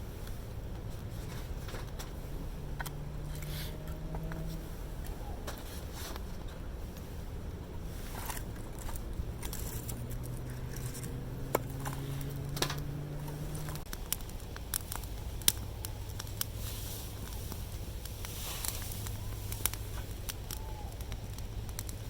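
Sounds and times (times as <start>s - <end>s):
light scraping: 0.0s - 13.9s
low steady hum: 0.0s - 22.0s
sharp clicks: 17.2s - 22.0s.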